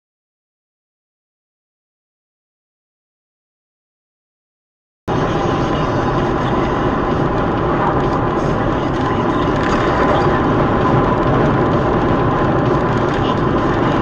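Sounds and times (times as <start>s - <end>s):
moving vehicle rushing noise: 5.1s - 14.0s.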